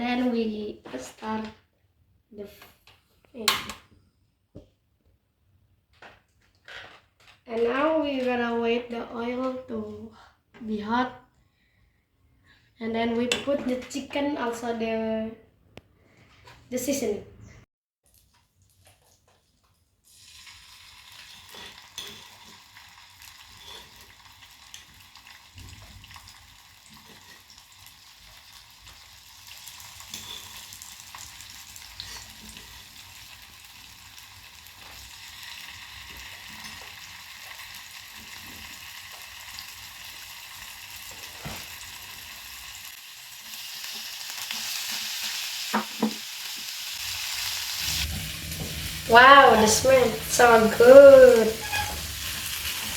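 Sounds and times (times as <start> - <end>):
food sizzling in frying pan: 20.0 - 52.9.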